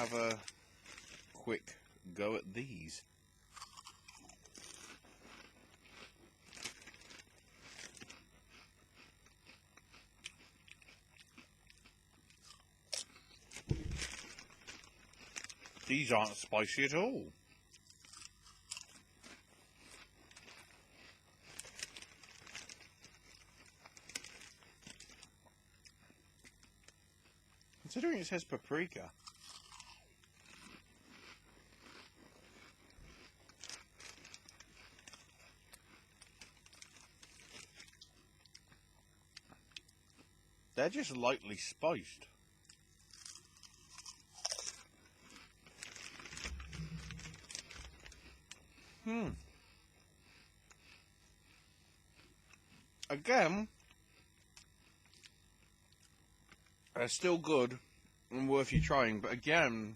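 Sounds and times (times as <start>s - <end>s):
crisp packet crinkling: 0.0s - 1.4s, 4.5s - 8.2s, 13.5s - 16.4s, 18.0s - 25.3s, 31.8s - 35.5s, 43.2s - 48.2s
crisps being chewed: 0.0s - 40.4s, 42.6s - 49.6s, 50.2s - 57.2s.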